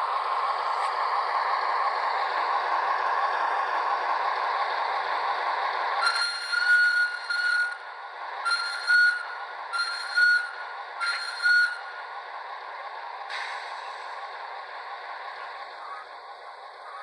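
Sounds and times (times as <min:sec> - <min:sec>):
model diesel locomotive engine running: 0:00.0 - 0:17.0
short hiss: 0:13.3 - 0:14.0.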